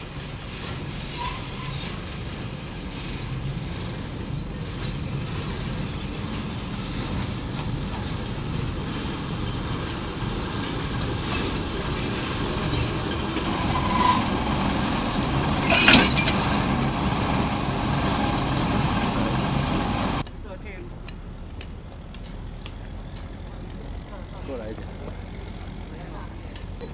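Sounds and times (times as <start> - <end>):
engine low rumble: 0.0 - 26.9
sharp metallic clank: 12.6 - 16.8.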